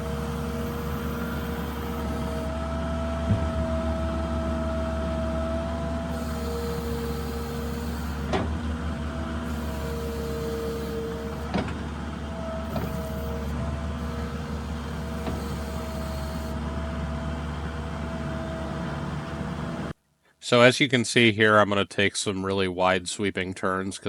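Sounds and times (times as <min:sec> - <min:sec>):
skid steer diesel engine: 0:00.0 - 0:20.0
sharp knocks: 0:03.1 - 0:08.6.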